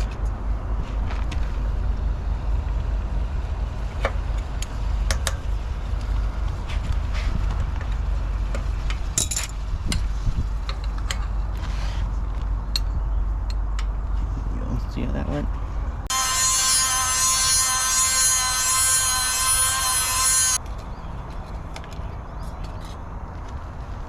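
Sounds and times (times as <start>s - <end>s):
engine idling low rumble: 0.0s - 16.1s.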